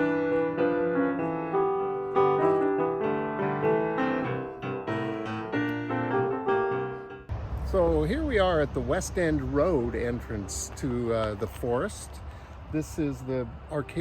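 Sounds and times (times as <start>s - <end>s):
solo piano music: 0.0s - 7.3s.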